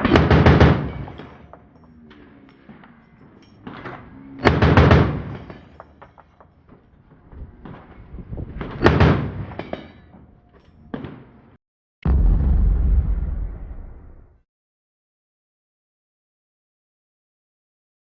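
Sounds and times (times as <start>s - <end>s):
loud gunshot reports: 12.0s - 14.4s.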